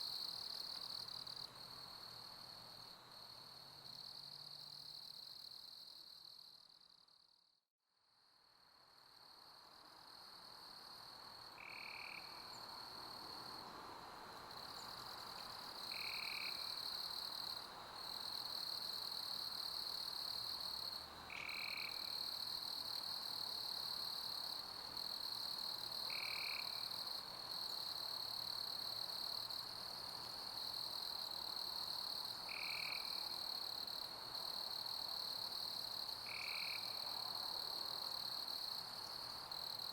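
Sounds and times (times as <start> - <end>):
crickets chirping: 9.1 - 39.9.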